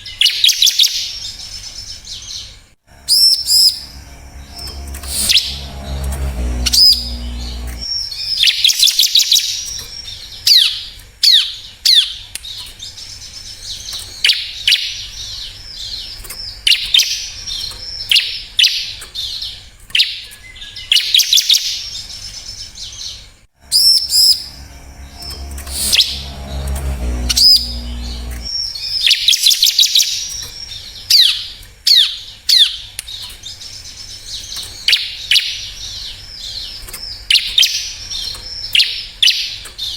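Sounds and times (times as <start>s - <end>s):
low rumble: 2.9s - 7.9s, 23.6s - 28.5s.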